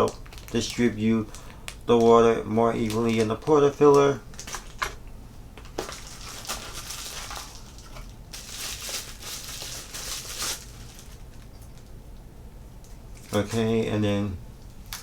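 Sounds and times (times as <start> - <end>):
packaging rustling and crinkling: 0.0 - 11.9.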